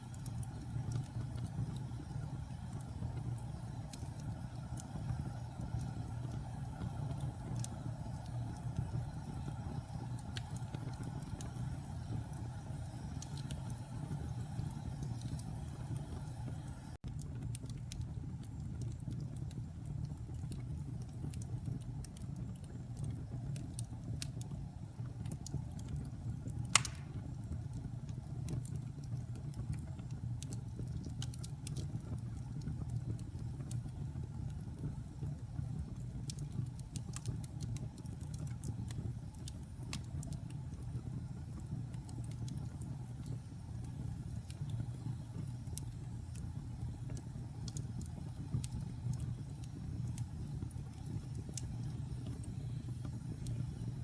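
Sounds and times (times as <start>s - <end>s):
fire crackling: 0.0s - 54.0s
wood fire roaring: 0.0s - 54.0s
loud pop of fire: 26.7s - 27.4s.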